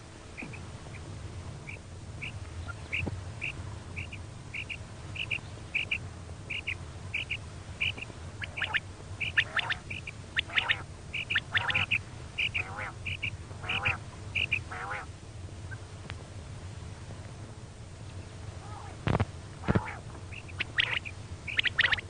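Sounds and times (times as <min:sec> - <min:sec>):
low hum: 0:00.0 - 0:22.0
harsh squawking calls: 0:00.4 - 0:15.1, 0:19.6 - 0:22.0
quail calling: 0:00.4 - 0:15.1, 0:19.6 - 0:22.0.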